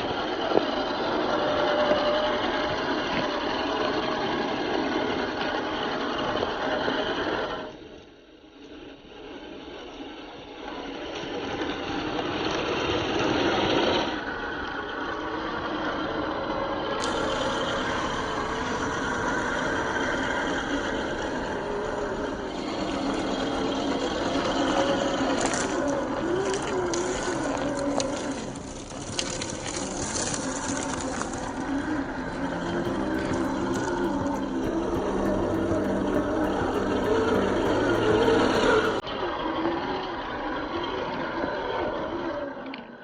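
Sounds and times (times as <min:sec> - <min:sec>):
toy car electric motor whirring: 0:22.8 - 0:32.6.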